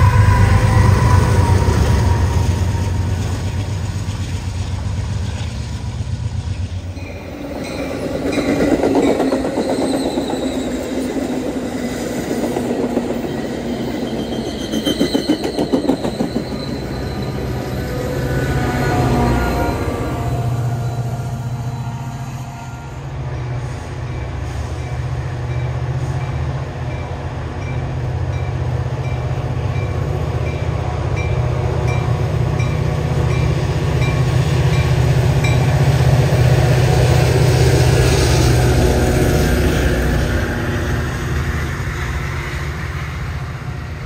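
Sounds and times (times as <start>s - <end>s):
freight cars rumbling past: 0.0s - 14.7s
faint wheel squeal: 9.2s - 11.2s, 13.3s - 18.2s.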